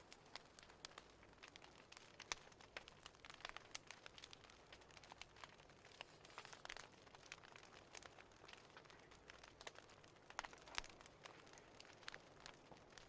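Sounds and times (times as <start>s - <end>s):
faint wood fire crackling: 0.0s - 13.0s.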